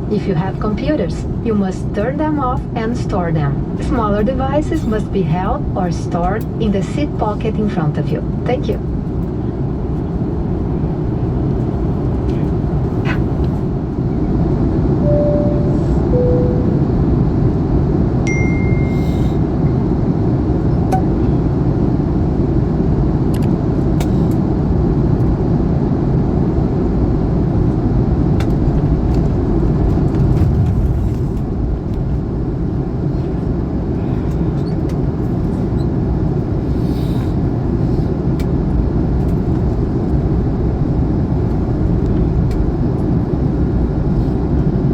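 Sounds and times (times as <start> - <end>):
aircraft cabin rumble: 0.0 - 44.9
faint two-note falling tone: 15.0 - 17.1.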